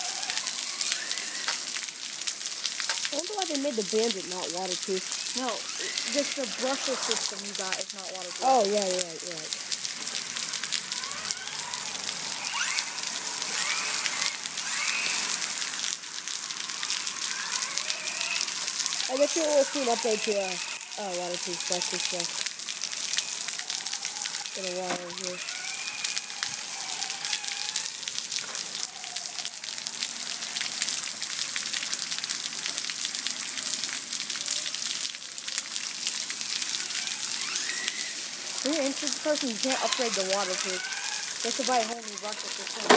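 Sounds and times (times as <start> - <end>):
electric motor whining: 0.0 - 1.7, 10.2 - 30.5, 36.6 - 42.9
hard rain hissing: 0.0 - 42.9.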